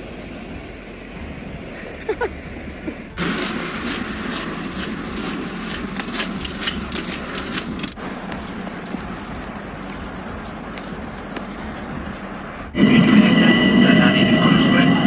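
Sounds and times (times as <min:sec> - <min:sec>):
vehicle traffic: 0:02.6 - 0:13.7
hiss with crackling: 0:03.2 - 0:08.0.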